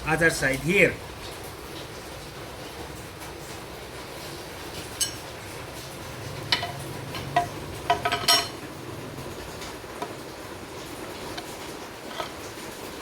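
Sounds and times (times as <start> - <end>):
metal tools clinking: 6.6 - 8.6.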